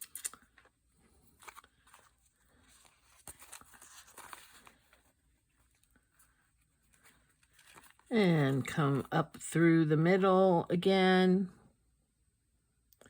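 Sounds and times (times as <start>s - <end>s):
paper pages rustling: 0.0s - 9.1s.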